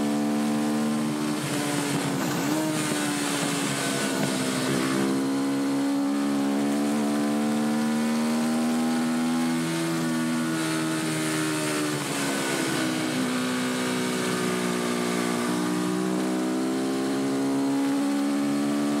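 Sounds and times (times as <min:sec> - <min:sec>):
motorcycle engine running hard: 0:00.0 - 0:19.0.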